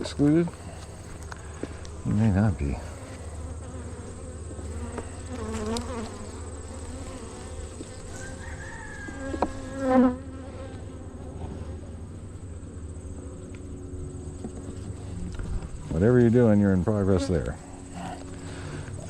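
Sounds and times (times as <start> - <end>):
honey bees buzzing: 0.0 - 19.0.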